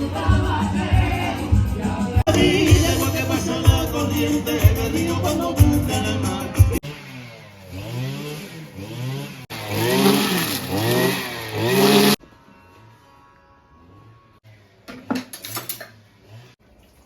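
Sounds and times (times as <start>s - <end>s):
background music: 0.0s - 6.8s
small engine revving: 6.8s - 14.7s, 16.0s - 16.6s.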